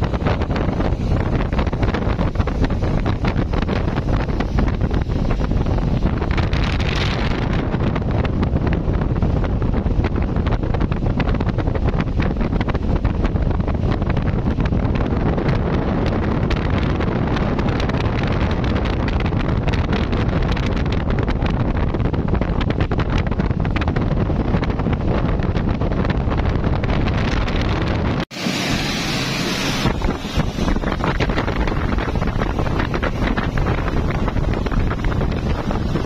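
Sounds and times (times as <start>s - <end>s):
water rushing: 0.0s - 10.2s, 27.1s - 36.0s
speedboat engines rumbling: 0.0s - 36.0s
wind buffeting microphone: 0.0s - 36.0s
spray hissing: 28.3s - 36.0s.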